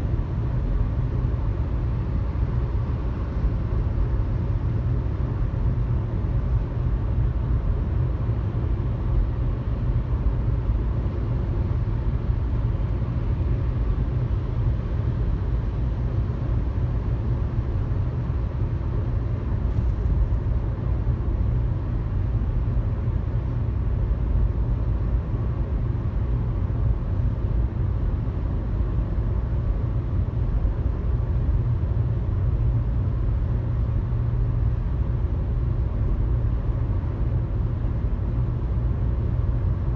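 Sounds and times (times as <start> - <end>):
road and tyre noise: 5.2 - 23.2.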